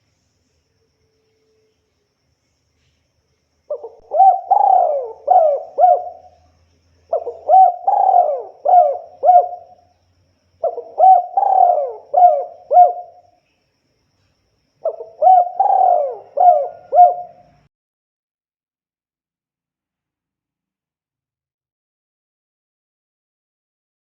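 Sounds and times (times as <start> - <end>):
dove cooing: 3.7 - 6.5, 7.1 - 9.8, 10.6 - 13.2, 14.8 - 17.6.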